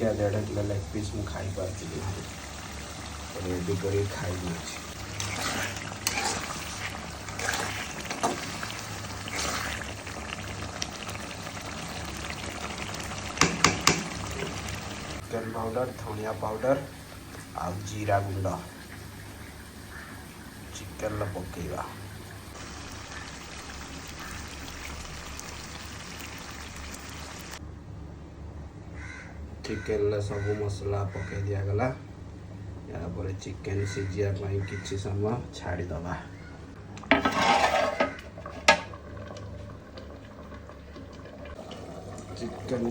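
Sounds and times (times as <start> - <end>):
curry bubbling in a pan: 1.7 - 15.2, 22.1 - 27.6, 37.1 - 42.9.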